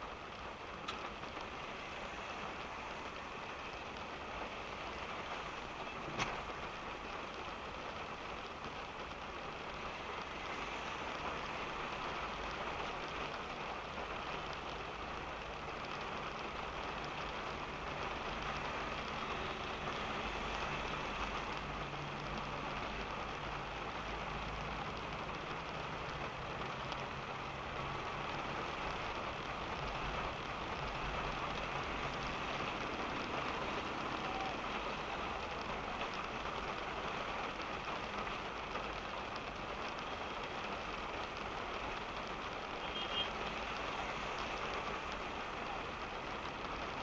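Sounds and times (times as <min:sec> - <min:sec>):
engine and road rumble: 0:00.0 - 0:47.0
rain falling on a car: 0:00.0 - 0:47.0.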